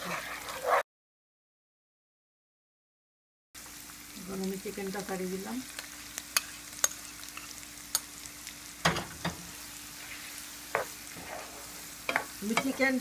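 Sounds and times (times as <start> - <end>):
chicken sizzling in hot oil: 0.0 - 0.8, 3.6 - 13.0.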